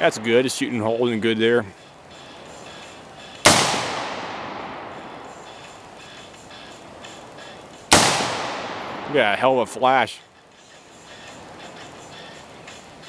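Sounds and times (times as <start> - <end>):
rifle shot echoing: 3.4 - 5.6, 7.9 - 9.6.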